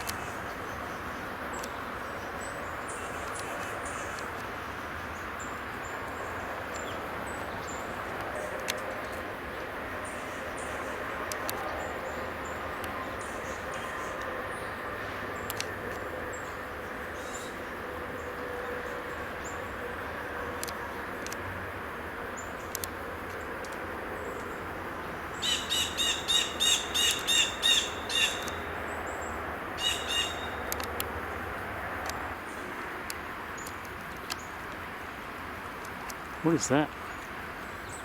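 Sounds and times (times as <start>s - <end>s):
steady background hiss: 0.0s - 38.0s
songbird nasal calls: 25.4s - 28.6s, 29.8s - 30.6s.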